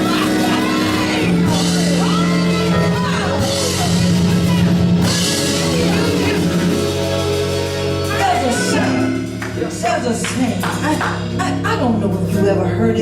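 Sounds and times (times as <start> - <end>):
drum kit: 0.0 - 12.8
live band music: 0.0 - 13.0.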